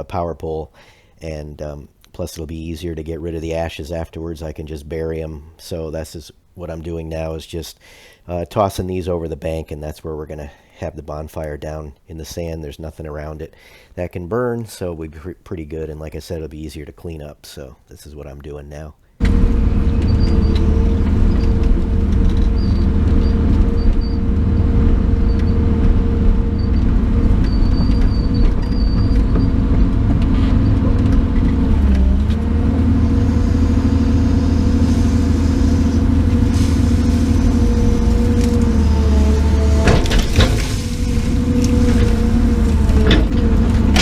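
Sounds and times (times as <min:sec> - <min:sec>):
diesel engine under load: 0:19.2 - 0:44.0.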